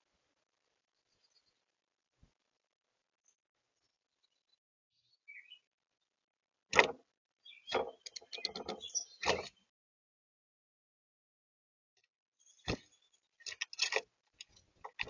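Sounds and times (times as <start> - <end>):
faint bird chirp: 0.8 - 1.7, 3.2 - 5.7, 7.4 - 9.7, 12.4 - 13.4
rattling taps and knocks: 6.8 - 7.0, 7.7 - 9.5.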